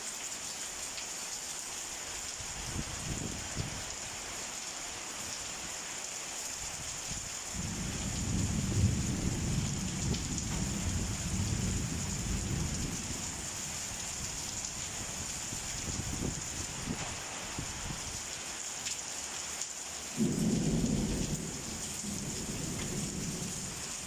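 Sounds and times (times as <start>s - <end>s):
steady rain falling: 0.0s - 24.0s
rolling thunder: 7.6s - 13.4s, 20.2s - 23.7s.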